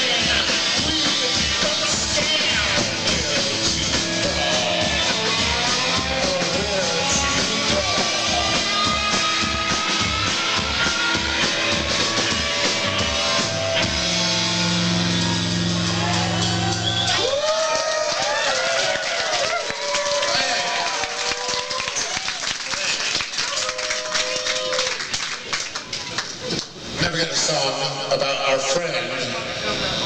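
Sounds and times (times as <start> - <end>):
rock band playing: 0.0 - 17.4.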